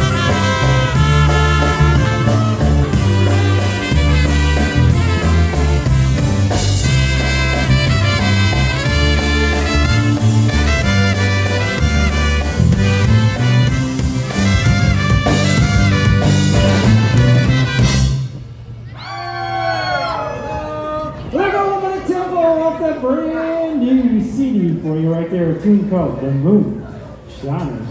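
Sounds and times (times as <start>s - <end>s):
brass carrying the tune: 0.0s - 18.5s
polka band playing: 0.0s - 18.6s.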